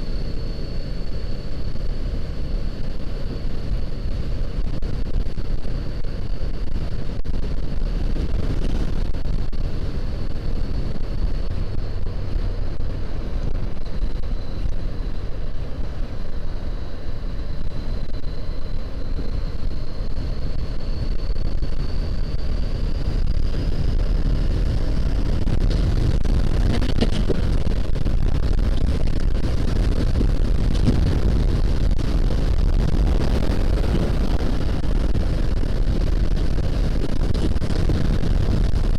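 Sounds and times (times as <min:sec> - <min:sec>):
faint high whine: 0:00.0 - 0:38.9
wind rush on microphone: 0:00.0 - 0:38.9
motorcycle engine running: 0:23.0 - 0:38.9.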